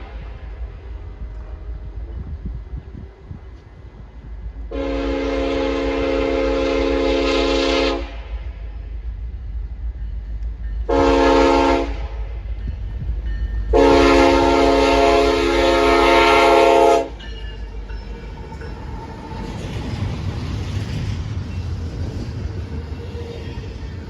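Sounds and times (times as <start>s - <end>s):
train rumble: 0.0s - 24.0s
locomotive air horn: 4.7s - 8.4s, 10.9s - 12.3s, 13.7s - 17.2s.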